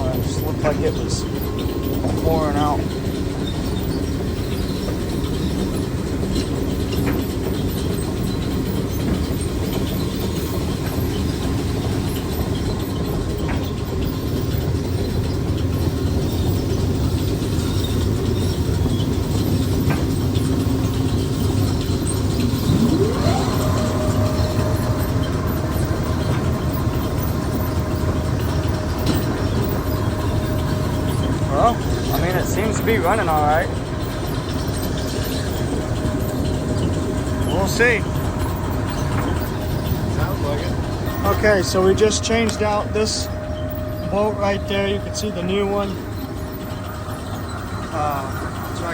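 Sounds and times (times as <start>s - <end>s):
mechanical whine: 0.0s - 48.9s
bucket elevator clatter: 18.0s - 48.9s.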